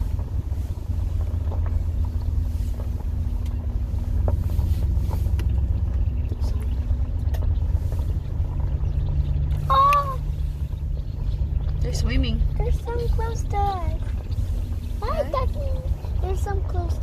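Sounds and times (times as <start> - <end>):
car driving rumble from inside: 0.0 - 17.0
light clicks from road: 1.1 - 11.9.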